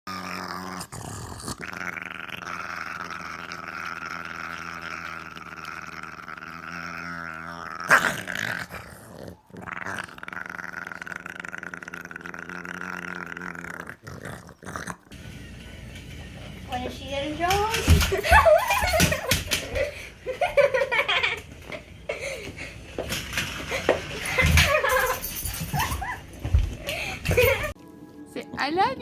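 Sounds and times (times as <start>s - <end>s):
dog growling: 0.1s - 15.2s.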